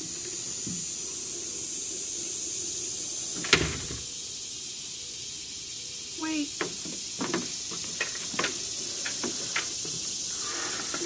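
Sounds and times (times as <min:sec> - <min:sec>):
door banging shut: 0:03.4 - 0:04.1.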